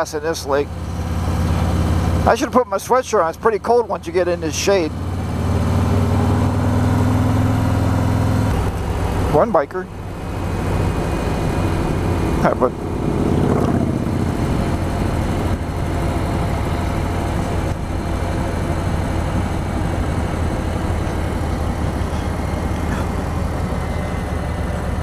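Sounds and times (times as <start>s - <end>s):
motorcycle engine running: 0.0s - 25.0s
wind and road noise: 0.0s - 25.0s.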